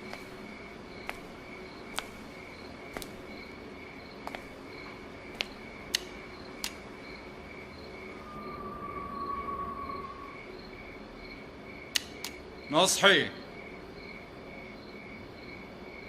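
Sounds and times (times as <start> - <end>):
crickets chirping: 0.0 - 16.0
sharp clicks: 5.4 - 6.8, 11.9 - 12.4.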